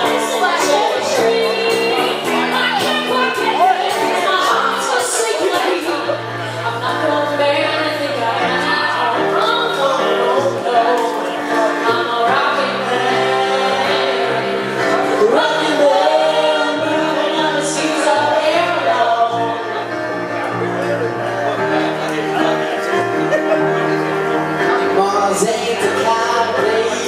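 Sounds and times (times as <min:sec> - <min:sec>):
live pop song with vocals: 0:00.0 - 0:27.0.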